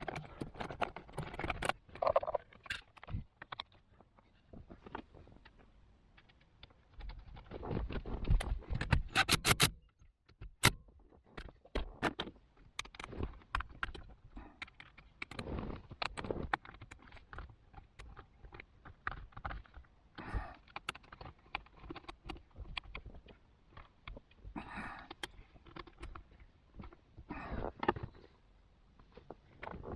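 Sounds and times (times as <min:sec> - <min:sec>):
clicks and taps of small parts: 0:00.0 - 0:05.6, 0:06.2 - 0:27.0
sharp clicks: 0:09.0 - 0:09.8.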